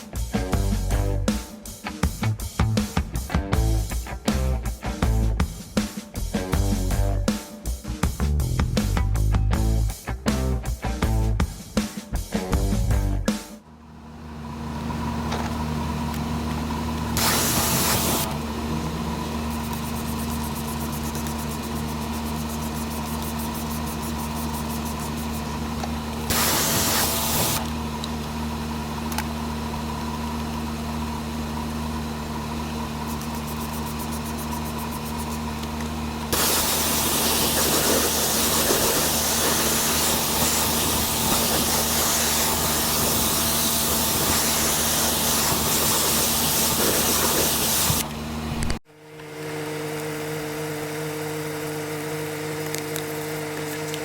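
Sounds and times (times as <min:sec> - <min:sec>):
pressure washer humming: 0:00.0 - 0:54.0
water spray hissing: 0:17.2 - 0:25.5, 0:26.3 - 0:27.6, 0:36.3 - 0:48.0.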